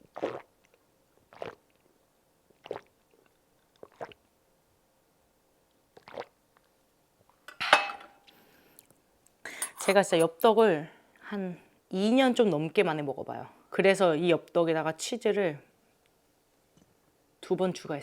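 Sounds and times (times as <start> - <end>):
person gulping water: 0.0 - 1.8, 2.5 - 4.2, 6.0 - 6.4.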